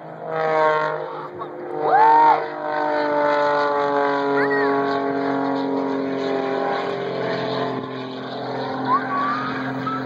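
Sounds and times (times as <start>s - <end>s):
propeller airplane engine droning: 0.0s - 10.0s
short rising chirp: 8.8s - 10.0s.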